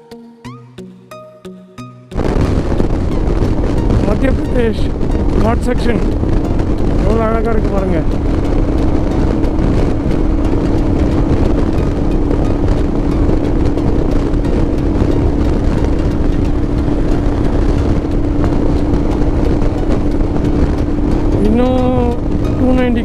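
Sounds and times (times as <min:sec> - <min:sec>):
motorcycle engine cruising: 0:02.1 - 0:23.0
wind rush on microphone: 0:02.1 - 0:23.0.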